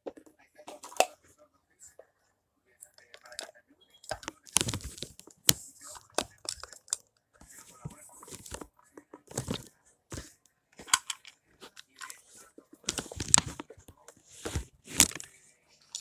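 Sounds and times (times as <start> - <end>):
plastic toys clacking together: 4.1 - 7.1, 9.3 - 15.3.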